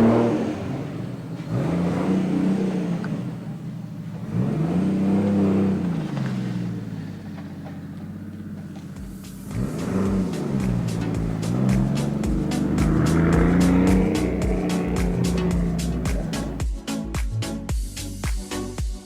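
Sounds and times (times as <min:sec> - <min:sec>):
car engine revving: 0:00.0 - 0:16.6.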